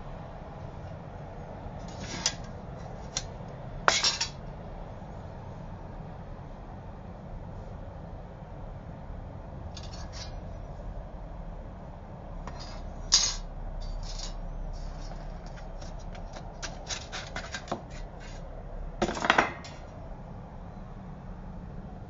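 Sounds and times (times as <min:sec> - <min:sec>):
metal scrapes: 0:01.8 - 0:03.2, 0:09.8 - 0:10.4, 0:12.5 - 0:18.4
light metal clicks and rubs: 0:12.5 - 0:18.4.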